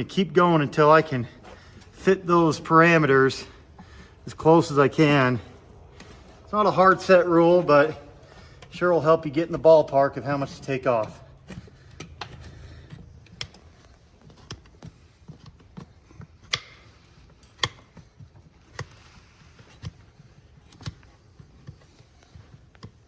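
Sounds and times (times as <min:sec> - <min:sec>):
tools snapping hoof horn: 0:15.4 - 0:19.0.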